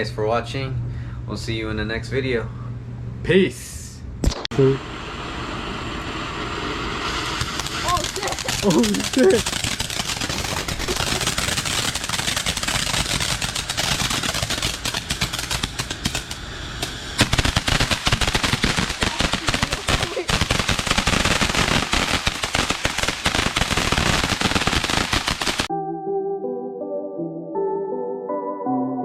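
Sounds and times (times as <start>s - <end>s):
firecrackers crackling: 5.4s - 25.7s.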